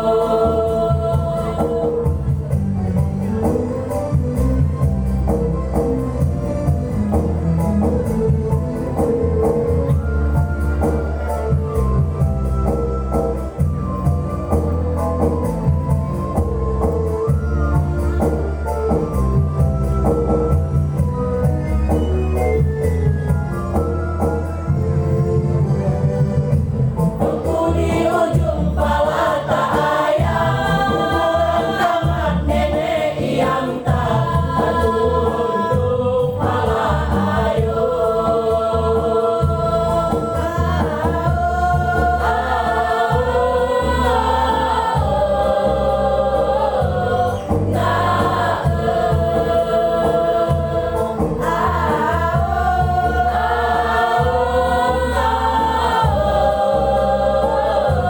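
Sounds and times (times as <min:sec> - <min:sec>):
choir singing: 0:00.0 - 0:02.5, 0:27.2 - 0:58.0
steady low beat: 0:00.0 - 0:10.5, 0:26.4 - 0:58.0
instrumental accompaniment: 0:00.0 - 0:58.0.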